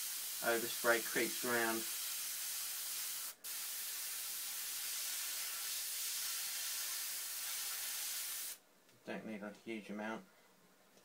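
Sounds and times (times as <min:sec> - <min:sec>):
airbrush spraying hiss: 0:00.0 - 0:08.6.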